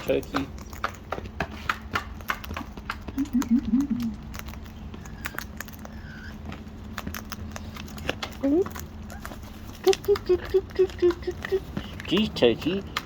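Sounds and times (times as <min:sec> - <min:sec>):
beaks tapping and pecking: 0:00.0 - 0:13.0.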